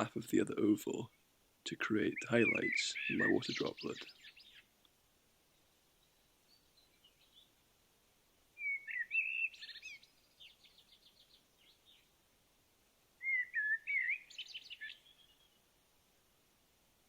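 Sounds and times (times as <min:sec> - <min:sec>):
songbird warbling: 0:01.9 - 0:04.7, 0:08.6 - 0:12.1, 0:13.2 - 0:15.6.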